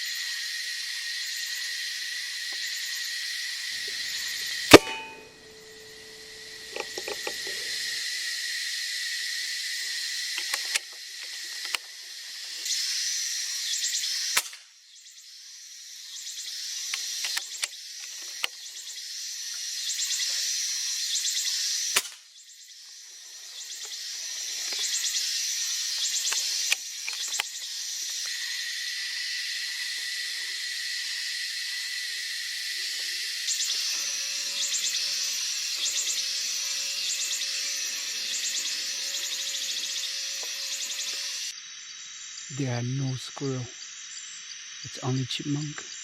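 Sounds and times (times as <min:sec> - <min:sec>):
insects buzzing: 0:00.0 - 0:46.0
sharp loud crack: 0:04.7 - 0:05.6.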